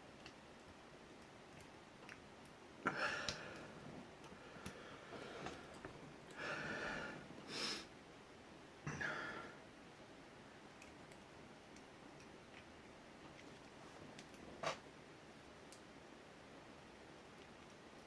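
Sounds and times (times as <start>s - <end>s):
person exhaling hard through nose: 6.4s - 7.9s.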